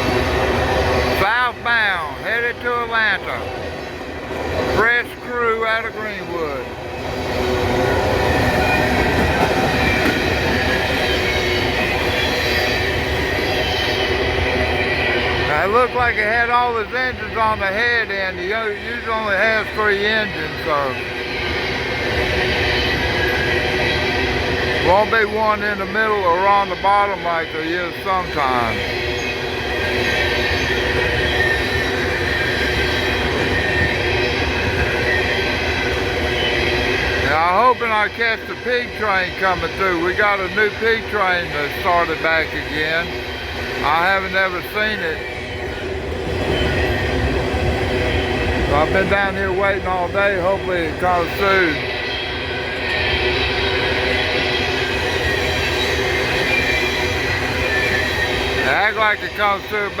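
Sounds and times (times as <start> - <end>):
train wheels rumbling on rails: 0.0 - 60.0
faint wheel squeal: 51.1 - 58.8.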